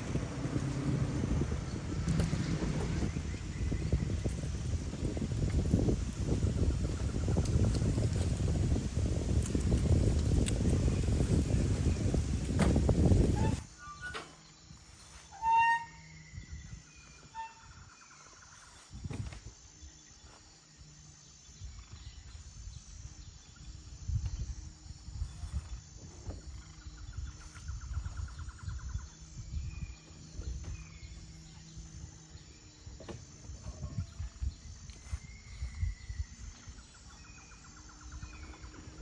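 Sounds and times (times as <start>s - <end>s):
low uneven rumble: 0.0s - 13.7s, 24.0s - 39.0s
wind buffeting microphone: 0.0s - 13.7s, 21.6s - 39.0s.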